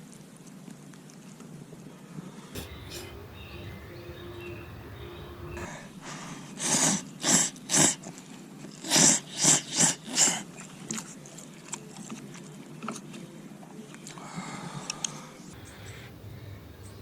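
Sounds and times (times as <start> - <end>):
sharp puffs of breath: 2.6 - 8.1, 14.2 - 16.8.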